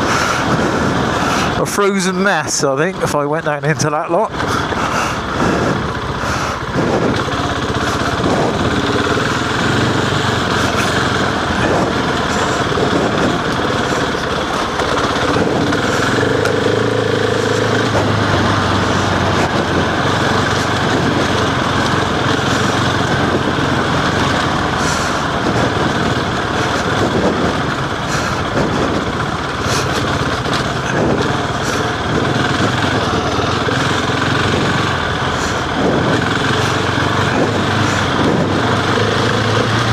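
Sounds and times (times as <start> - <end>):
continuous rush of noise: 0.0 - 39.9
motorcycle engine running: 0.0 - 39.9.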